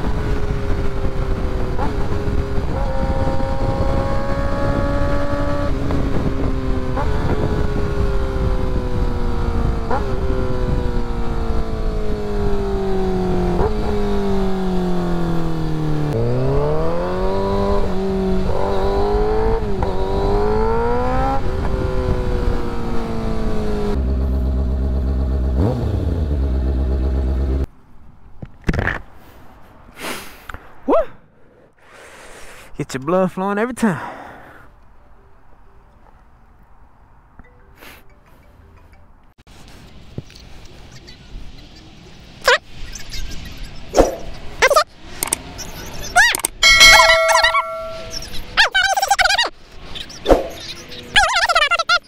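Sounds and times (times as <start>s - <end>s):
motorcycle engine shifting gears: 0.0s - 27.7s, 49.8s - 51.5s
motorcycle idling: 24.0s - 27.6s.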